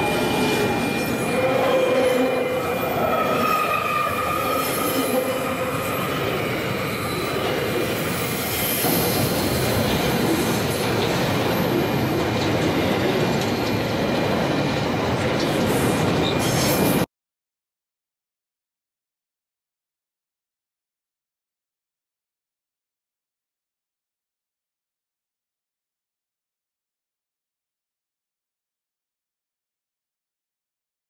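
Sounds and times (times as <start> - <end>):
wheels squealing: 0.0 - 9.7
train wheels rumbling and rattling: 0.0 - 17.0.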